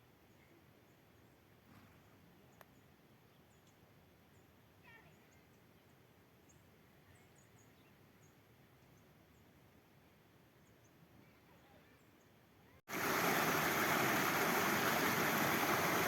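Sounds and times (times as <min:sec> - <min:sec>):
small birds chirping: 0:00.3 - 0:09.6.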